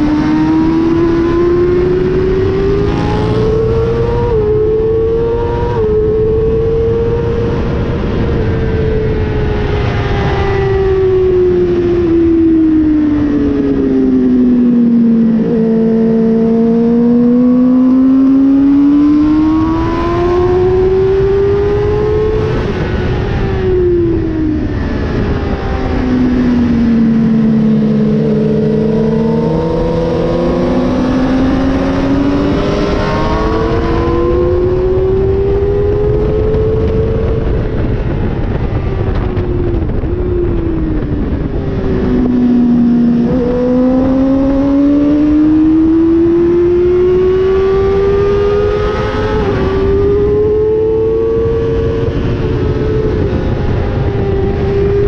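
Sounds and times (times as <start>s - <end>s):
racing motorcycle engine revving: 0.0s - 55.0s
wind rushing over microphone: 0.0s - 55.0s.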